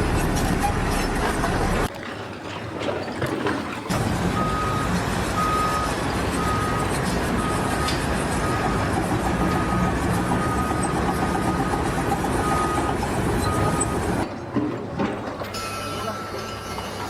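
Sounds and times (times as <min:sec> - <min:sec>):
heavy vehicle engine running: 0:00.0 - 0:01.9, 0:03.9 - 0:14.3
reversing alarm beeping: 0:04.3 - 0:14.2, 0:15.6 - 0:17.0.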